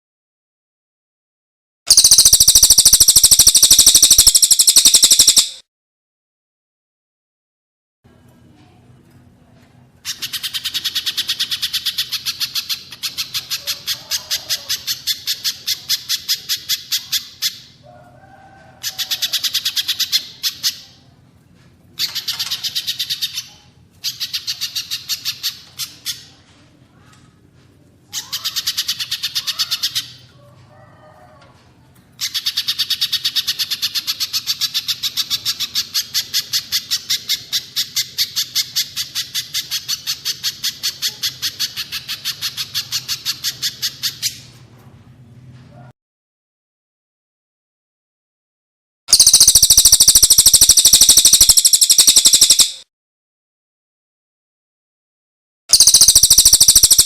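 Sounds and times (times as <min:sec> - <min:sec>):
bird rapid high chattering: 0:01.9 - 0:05.6, 0:10.0 - 0:17.8, 0:28.2 - 0:30.2, 0:32.2 - 0:44.4, 0:49.1 - 0:52.8, 0:55.7 - 0:57.0
soft low bird chirps: 0:01.9 - 0:05.6, 0:49.1 - 0:52.8, 0:55.7 - 0:57.0.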